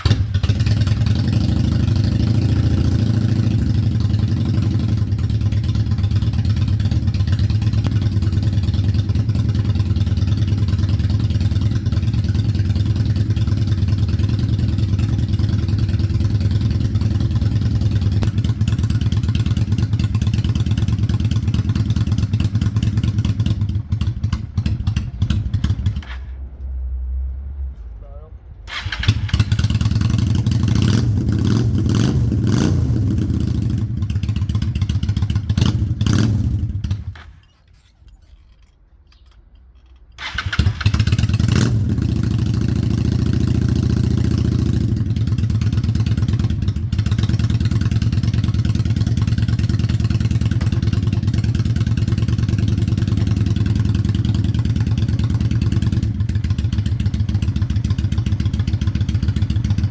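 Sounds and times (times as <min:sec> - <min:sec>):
motorcycle engine running: 0:00.0 - 0:26.2, 0:28.7 - 0:37.4, 0:40.2 - 0:59.9.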